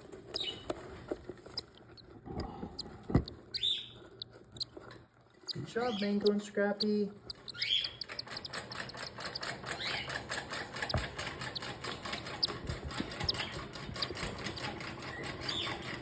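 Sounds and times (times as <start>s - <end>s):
chicks peeping: 0.1s - 16.0s
rapid ticking pulse: 7.3s - 14.8s.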